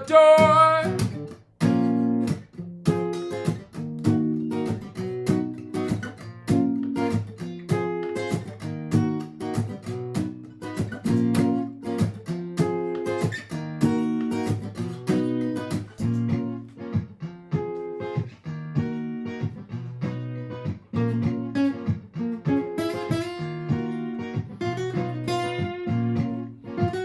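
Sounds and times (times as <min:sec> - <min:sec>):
acoustic guitar strumming chords: 0:00.0 - 0:27.0.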